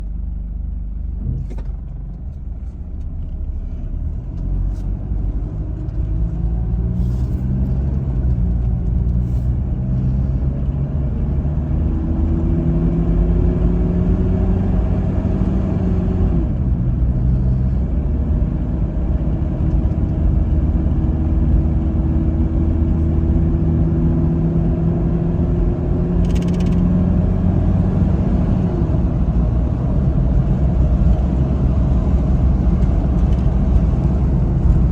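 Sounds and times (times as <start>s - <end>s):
diesel van engine accelerating: 0.0s - 34.9s.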